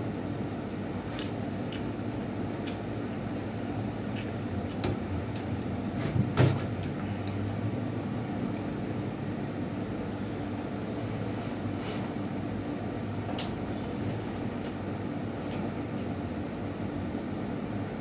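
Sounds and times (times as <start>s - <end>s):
clicks and knocks of eating: 1.1s - 5.6s.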